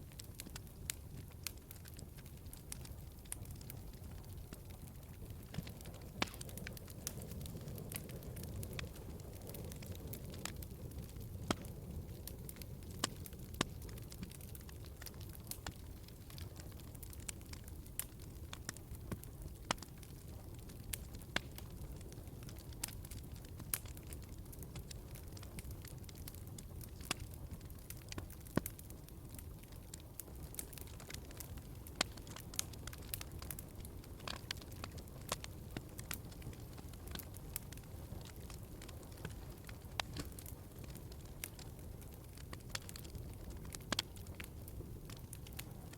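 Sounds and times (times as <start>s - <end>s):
wood fire crackling: 0.0s - 45.9s.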